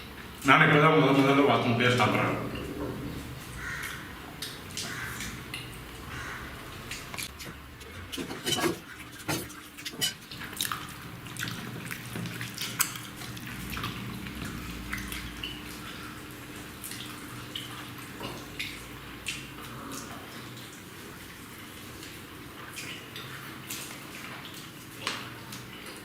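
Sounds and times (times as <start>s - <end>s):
wet chewing smacks: 8.9s - 15.6s.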